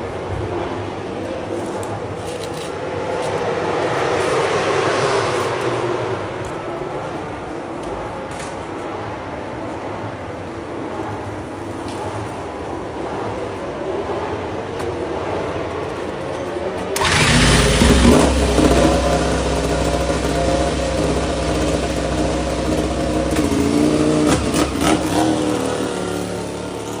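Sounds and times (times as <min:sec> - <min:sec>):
motorcycle engine revving: 0:17.0 - 0:27.0.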